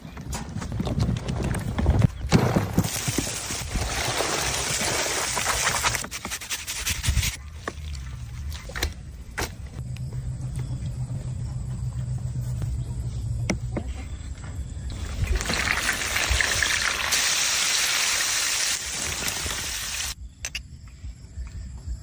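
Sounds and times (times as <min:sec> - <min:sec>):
steady low hum: 0:07.8 - 0:15.1.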